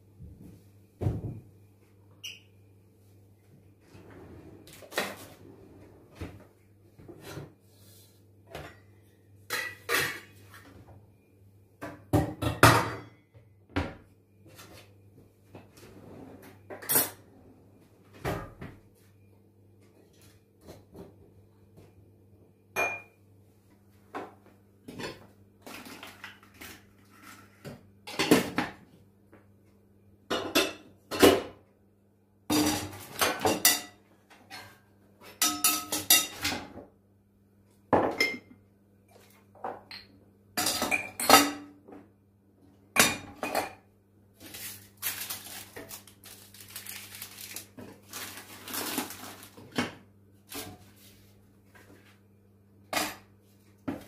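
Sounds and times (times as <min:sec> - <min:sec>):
dishes and cutlery clinking: 0:09.5 - 0:10.6, 0:32.5 - 0:36.8, 0:39.7 - 0:41.8.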